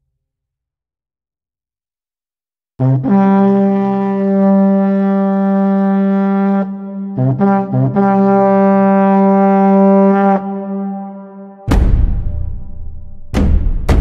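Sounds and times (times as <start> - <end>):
ship's horn blasts: 2.8 - 11.7.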